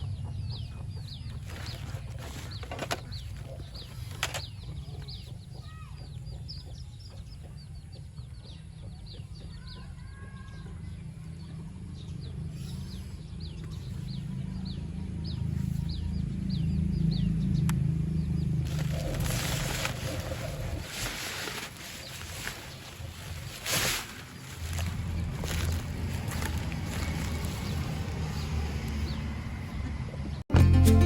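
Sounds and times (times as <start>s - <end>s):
birds chirping: 0.0s - 30.4s
steady low rumble: 10.8s - 30.4s.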